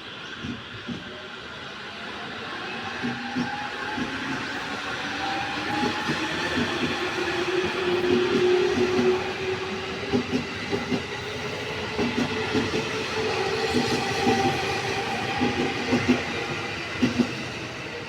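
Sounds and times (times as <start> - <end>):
train wheels clacking on rail joints: 9.9 - 17.5.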